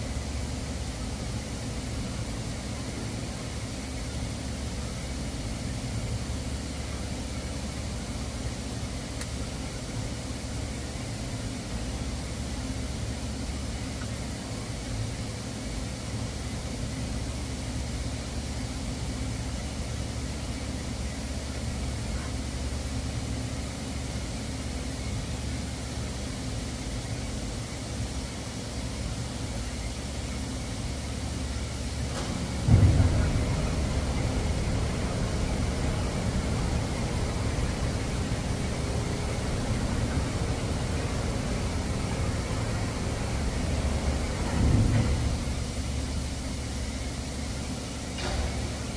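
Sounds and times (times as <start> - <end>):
low machine hum: 17.9 - 48.9.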